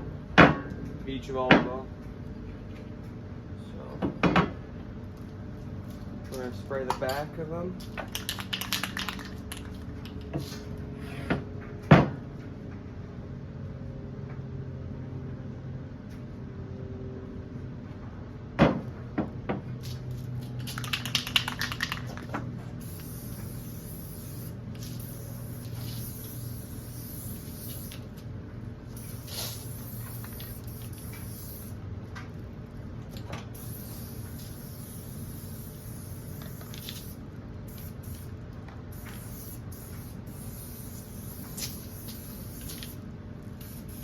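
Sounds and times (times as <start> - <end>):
aerosol spray can hissing: 20.6 - 28.1, 29.0 - 31.8, 33.6 - 38.3, 38.9 - 43.0, 43.6 - 44.0.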